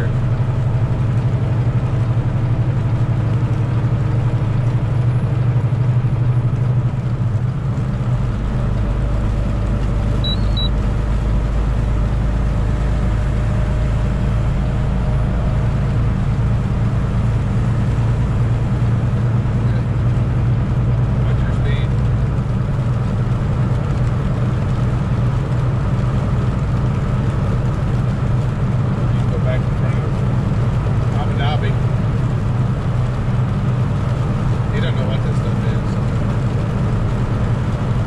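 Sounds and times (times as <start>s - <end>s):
truck engine and road drone: 0.0s - 38.0s
short high beeps: 10.2s - 10.8s.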